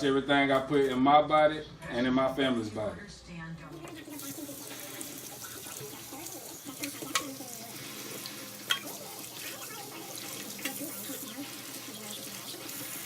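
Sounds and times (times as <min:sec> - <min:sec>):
kitchen tap running: 0:03.8 - 0:13.0
meat being washed: 0:03.9 - 0:13.0.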